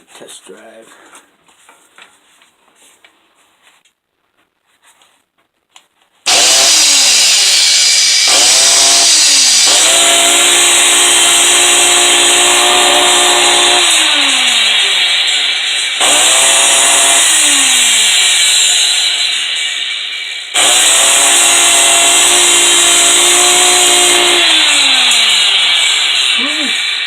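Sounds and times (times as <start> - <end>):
angle grinder running harshly: 6.3 - 27.0.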